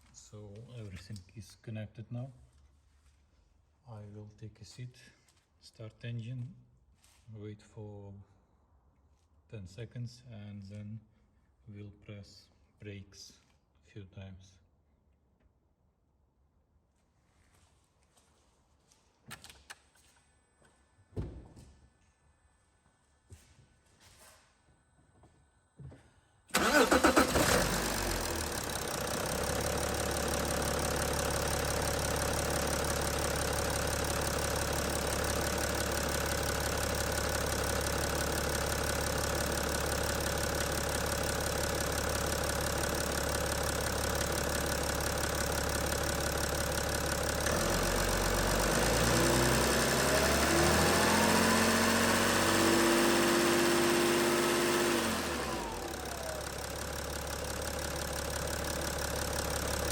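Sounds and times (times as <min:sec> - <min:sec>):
diesel engine starting and idling: 0:26.5 - 0:59.9.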